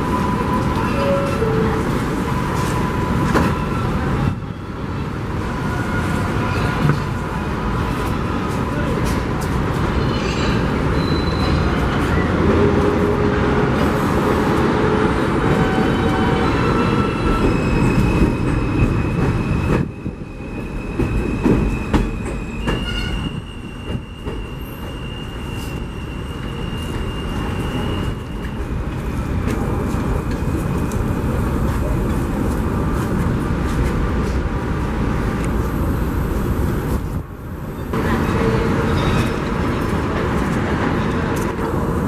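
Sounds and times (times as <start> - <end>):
train rumble: 0.0 - 42.0
train wheels squealing: 10.0 - 12.4, 15.5 - 28.8.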